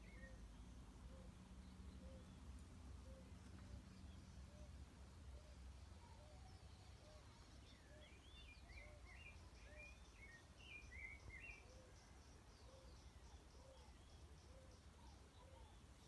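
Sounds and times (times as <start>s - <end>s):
bird twittering chirps: 5.9s - 15.8s.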